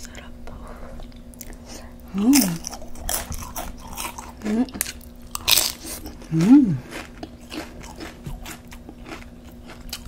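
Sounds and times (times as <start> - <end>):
person humming: 2.1 - 2.6, 6.2 - 6.9
crunching tortilla chips: 2.4 - 10.0.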